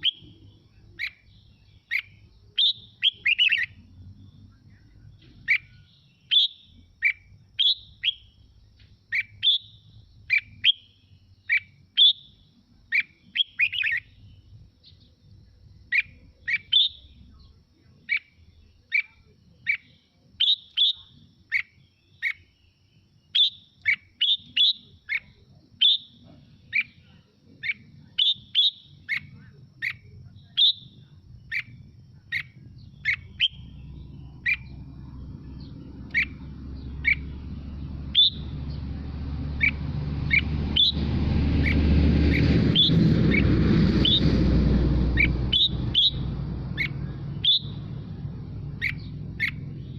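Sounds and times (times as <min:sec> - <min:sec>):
bird singing whistled phrases: 0:00.0 - 0:03.8, 0:04.4 - 0:08.4, 0:09.1 - 0:15.1, 0:15.8 - 0:38.9, 0:39.5 - 0:43.4, 0:45.2 - 0:49.9.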